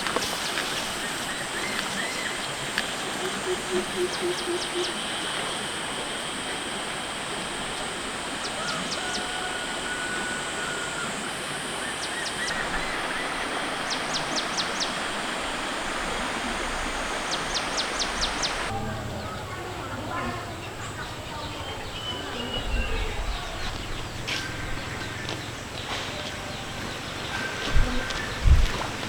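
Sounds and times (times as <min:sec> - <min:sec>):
high insect-like drone: 0:00.1 - 0:18.7
rushing noise: 0:04.6 - 0:18.8.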